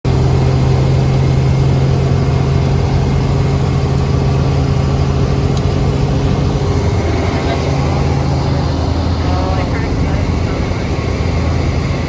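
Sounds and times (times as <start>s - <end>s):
helicopter engine and rotor: 0.0s - 12.0s.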